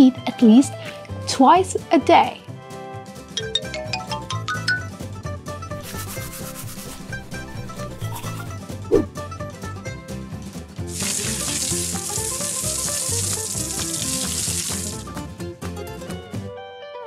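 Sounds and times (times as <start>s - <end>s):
background music: 0.0s - 17.0s
tap water running into sink: 10.9s - 15.2s.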